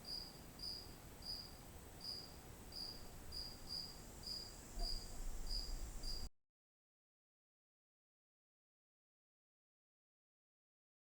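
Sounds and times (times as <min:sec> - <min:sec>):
cricket chirping: 0:00.0 - 0:06.3.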